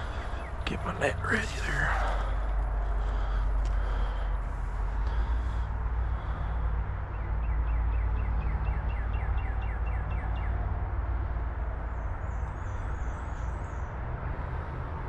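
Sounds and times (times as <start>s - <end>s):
steady low rumble: 0.0s - 7.2s
songbird singing: 0.0s - 10.6s.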